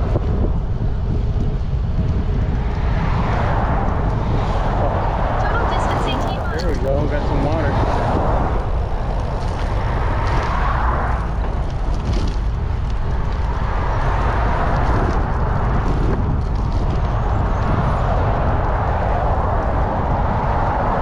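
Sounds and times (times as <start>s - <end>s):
wind rumble on microphone: 0.0s - 21.0s
road traffic: 1.7s - 16.1s.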